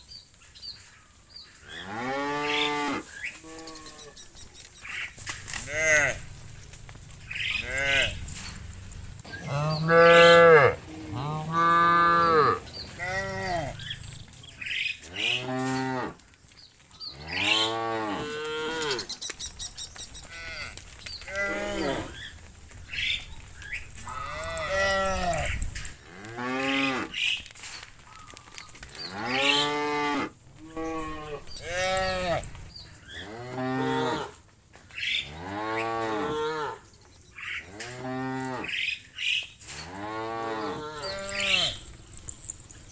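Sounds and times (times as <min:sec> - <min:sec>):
cattle mooing: 0:05.2 - 0:14.2, 0:15.1 - 0:16.2, 0:20.2 - 0:22.4, 0:23.9 - 0:27.1, 0:29.2 - 0:34.3, 0:39.8 - 0:42.3.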